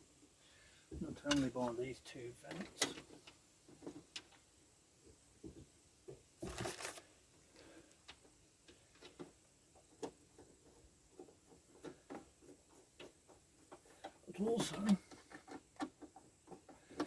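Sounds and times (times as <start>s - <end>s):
rustling scrape: 6.4s - 7.1s.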